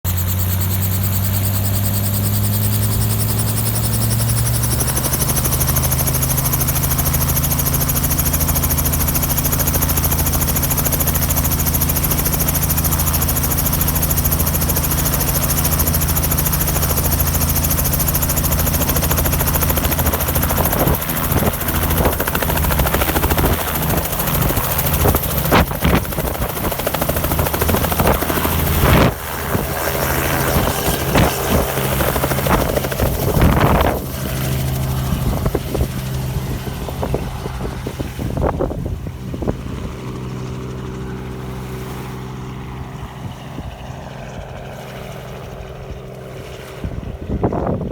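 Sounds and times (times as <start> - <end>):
helicopter rotor beat: 0.0 - 47.9
gusty thumps and buffets: 7.9 - 40.7.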